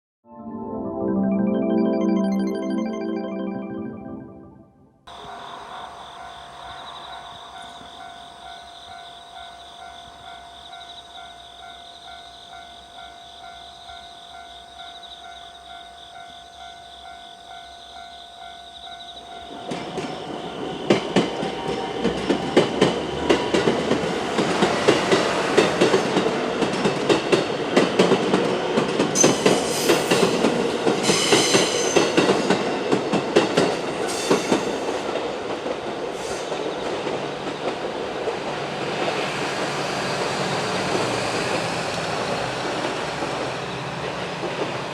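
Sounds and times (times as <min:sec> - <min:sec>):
level crossing bell ringing: 0:00.4 - 0:04.7
train wheels on rails: 0:05.1 - 0:17.6, 0:18.4 - 0:44.9
wheels clacking over rail joints: 0:19.4 - 0:44.9.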